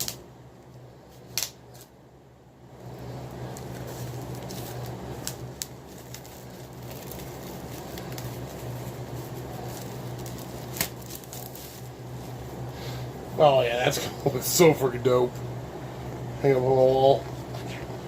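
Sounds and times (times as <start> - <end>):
electrical hum: 0.0 - 18.0
paper rustling: 3.0 - 12.4.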